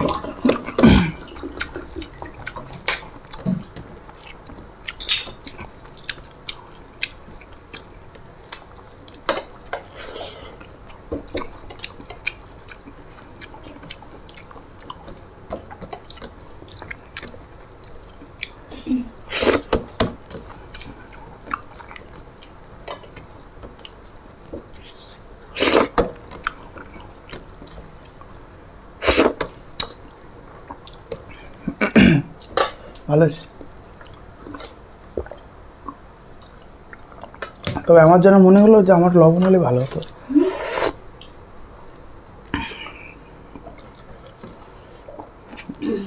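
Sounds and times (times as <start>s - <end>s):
person chewing: 0.0s - 37.7s, 39.9s - 41.4s, 42.5s - 45.8s.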